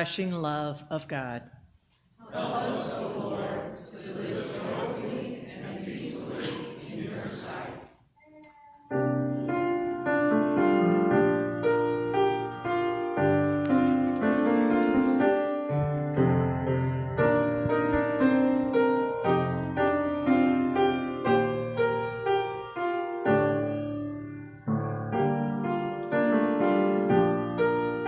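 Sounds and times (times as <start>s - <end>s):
piano music: 8.9s - 28.0s.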